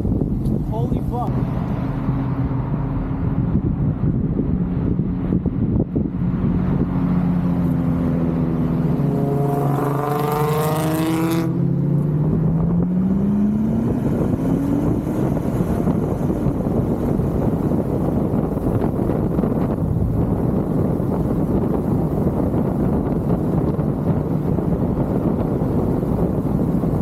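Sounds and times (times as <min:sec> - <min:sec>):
muscle car engine running loud: 0:12.2 - 0:27.0.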